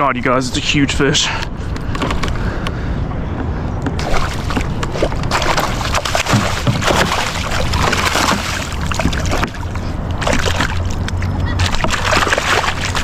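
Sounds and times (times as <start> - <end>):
water splashing and sloshing: 3.8 - 13.0.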